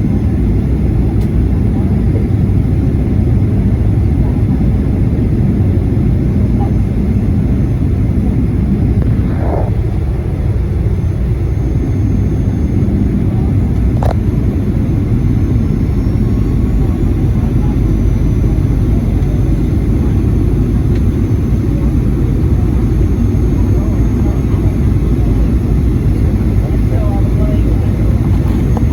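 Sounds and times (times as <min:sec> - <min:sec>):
airliner cabin engine rumble: 0:00.0 - 0:28.9.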